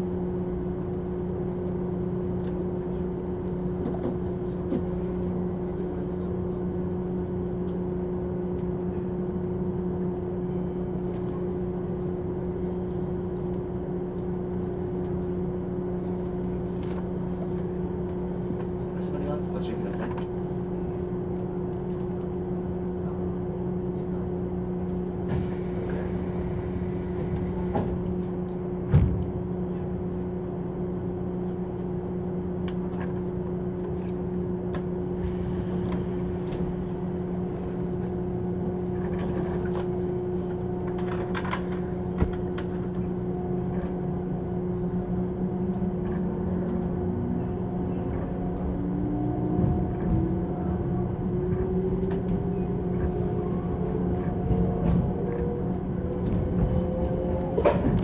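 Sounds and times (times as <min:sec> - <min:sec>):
train motor hum and whine: 0:25.3 - 0:28.7, 0:45.7 - 0:58.0.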